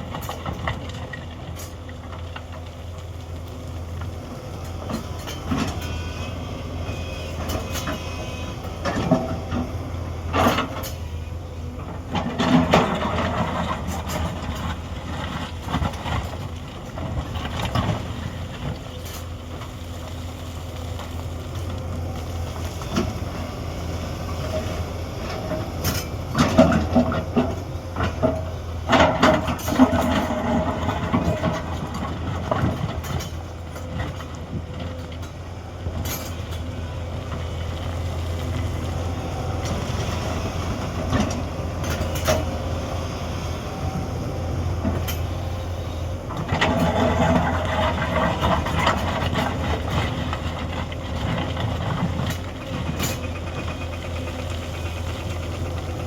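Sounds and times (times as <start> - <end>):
excavator diesel engine humming: 0.0 - 56.0
metallic clanks and scrapes: 0.1 - 1.8, 4.9 - 9.7, 10.3 - 11.2, 11.8 - 19.4, 24.3 - 35.4, 36.0 - 36.7, 39.6 - 42.7, 44.8 - 54.0.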